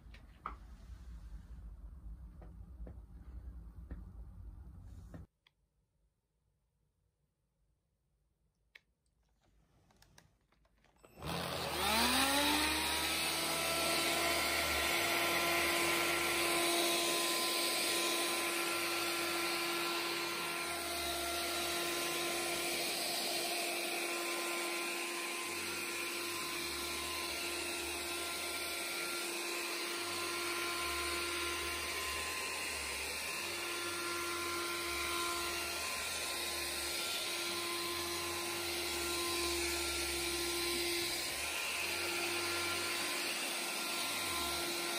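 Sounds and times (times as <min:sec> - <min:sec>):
cordless vacuum motor whining: 0:10.8 - 0:44.9.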